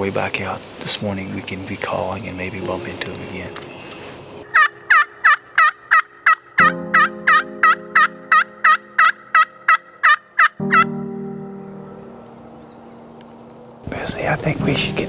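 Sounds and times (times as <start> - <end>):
turkey yelps: 3.8 - 10.9.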